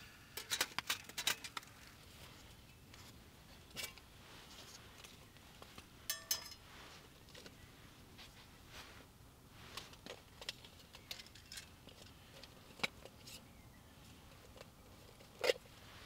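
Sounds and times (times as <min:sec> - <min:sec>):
metal stove clicks and clinks: 0:06.1 - 0:06.6.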